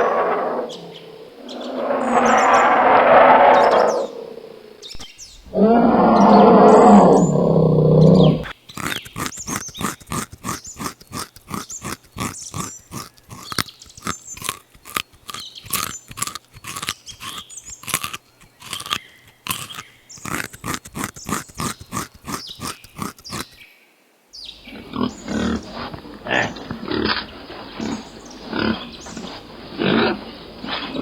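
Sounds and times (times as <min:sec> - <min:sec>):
animal long loud call: 0:00.0 - 0:08.5.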